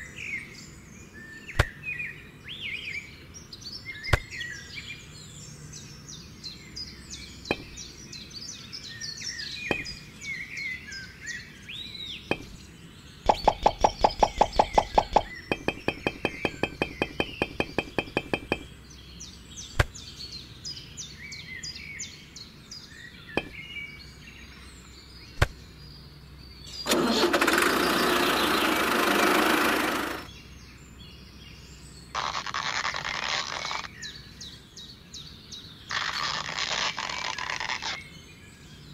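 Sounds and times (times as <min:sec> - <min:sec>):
birds chirping: 0:00.0 - 0:38.9
rapid loud knocks: 0:07.5 - 0:07.8, 0:09.7 - 0:10.0, 0:12.3 - 0:12.6, 0:13.3 - 0:18.7, 0:23.4 - 0:23.6
sharp clicks: 0:07.5 - 0:07.8, 0:09.7 - 0:10.0, 0:12.3 - 0:12.6, 0:13.3 - 0:18.7
fast pulsing buzz: 0:12.3 - 0:12.6, 0:13.3 - 0:18.7, 0:26.9 - 0:30.3.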